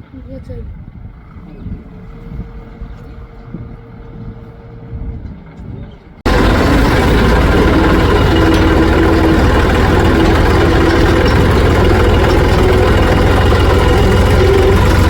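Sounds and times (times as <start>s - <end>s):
diesel engine throbbing: 6.3s - 15.0s.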